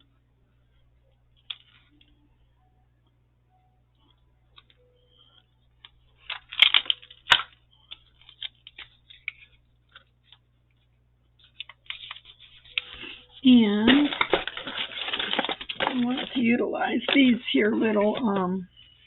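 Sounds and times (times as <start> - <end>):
paper rustling: 6.1 - 18.5.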